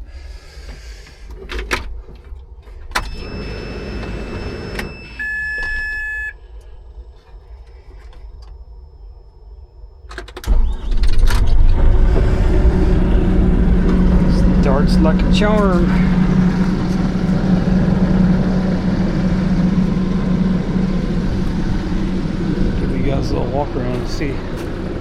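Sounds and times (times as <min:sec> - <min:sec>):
diesel engine cranking and running: 0:00.0 - 0:08.7, 0:10.1 - 0:25.0
electronic warning beep: 0:03.0 - 0:06.5.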